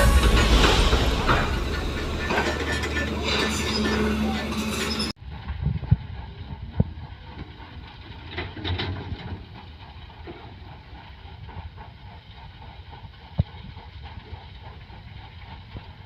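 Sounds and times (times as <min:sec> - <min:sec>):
excavator diesel engine running: 0:00.0 - 0:05.4.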